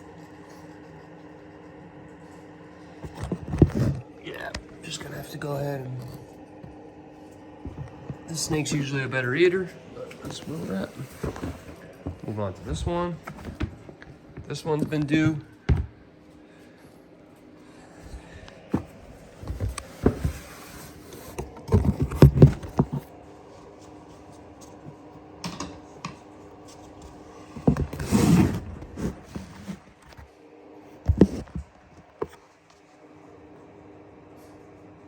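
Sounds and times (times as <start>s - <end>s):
faint steady hum: 0.0s - 35.0s
rustling scrape: 9.6s - 13.6s, 18.7s - 23.1s, 26.7s - 30.4s.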